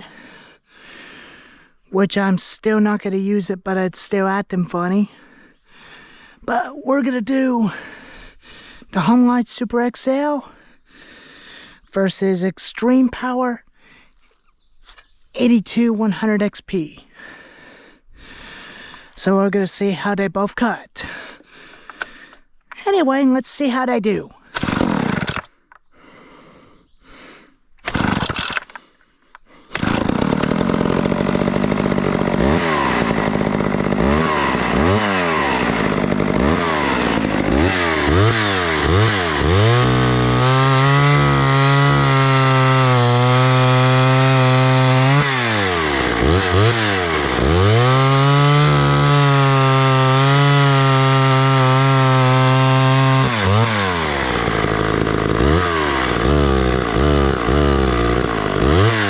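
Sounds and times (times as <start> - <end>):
chainsaw revving: 24.5 - 25.5, 27.8 - 28.8, 29.7 - 59.0.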